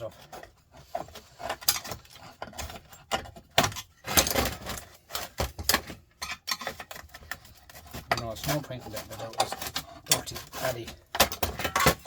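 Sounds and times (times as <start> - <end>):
screwdriver scraping metal plate: 6.3 - 12.0.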